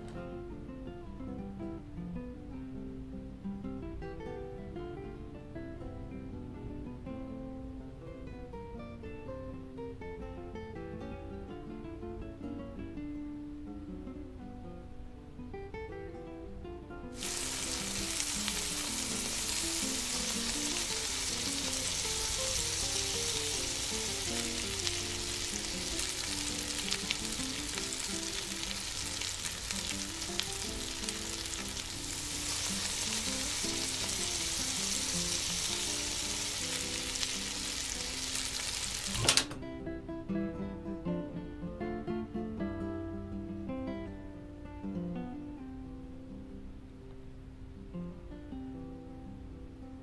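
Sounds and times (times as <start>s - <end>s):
soft acoustic guitar music: 0.0s - 50.0s
batter sizzling in hot oil: 17.2s - 39.3s.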